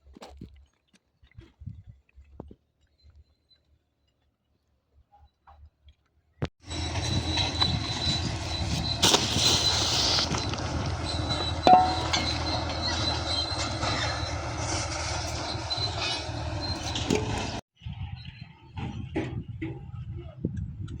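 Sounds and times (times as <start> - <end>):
metallic clang: 11.7 - 12.6.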